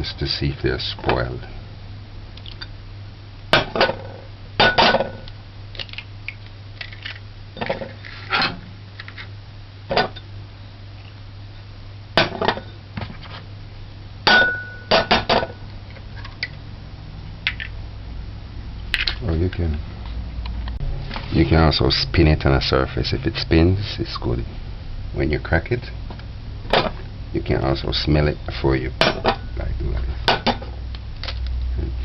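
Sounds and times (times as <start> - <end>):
eggs cracking on bowl rim: 5.2 - 7.2
dishes clinking: 9.9 - 10.3, 14.3 - 15.6.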